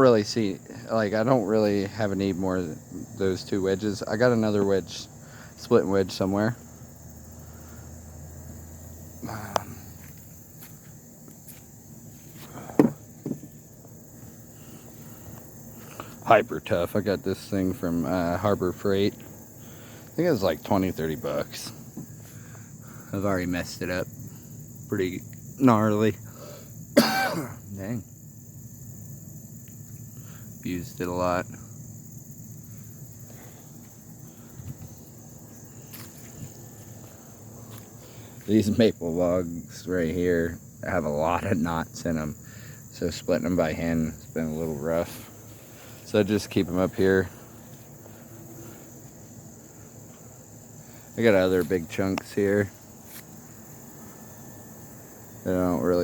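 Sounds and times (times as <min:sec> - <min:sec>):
crickets chirring: 0:00.0 - 0:56.0
footsteps: 0:09.5 - 0:13.6, 0:34.6 - 0:38.6, 0:53.0 - 0:53.4
tools knocking and scuffing: 0:10.0 - 0:13.6.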